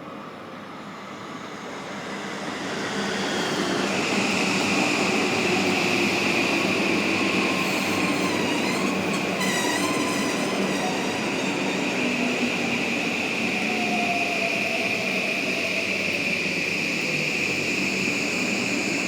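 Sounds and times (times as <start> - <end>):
electric train rolling: 2.0 - 19.0
high wheel squeal: 7.2 - 15.5.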